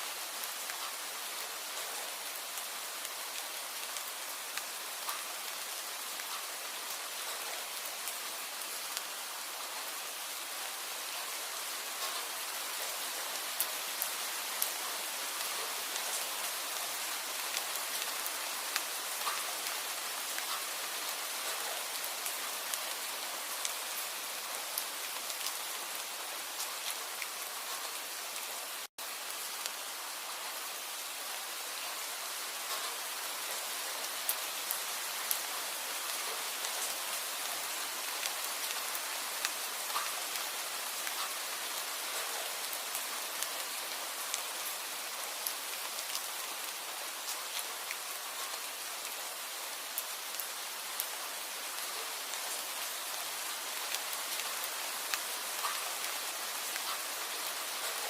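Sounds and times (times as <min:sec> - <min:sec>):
steady rain: 0:00.0 - 0:58.0
rain drops ticking: 0:00.1 - 0:58.0.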